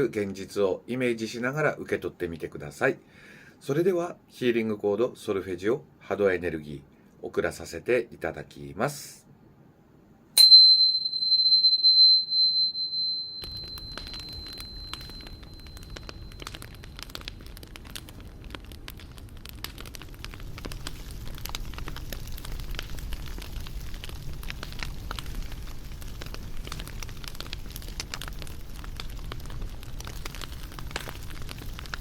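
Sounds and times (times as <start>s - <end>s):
high ringing tone: 10.4s - 17.1s
wood fire crackling and popping: 10.4s - 32.0s.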